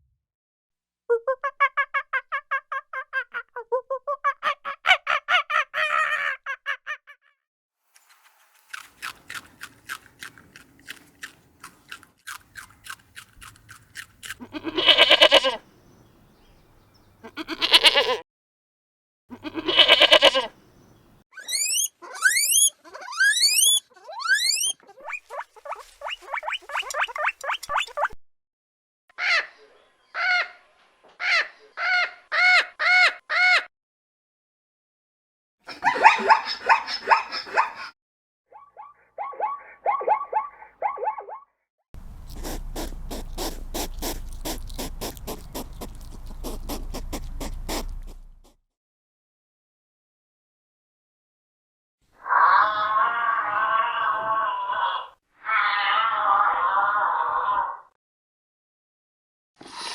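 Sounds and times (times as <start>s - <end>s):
rough animal call: 9.0s - 15.6s, 19.3s - 20.5s, 21.4s - 28.0s, 42.0s - 48.6s, 52.2s - 57.9s
animal calls: 14.2s - 15.6s, 19.3s - 20.5s, 21.4s - 28.2s, 42.0s - 48.6s
quick ticks: 42.0s - 48.5s.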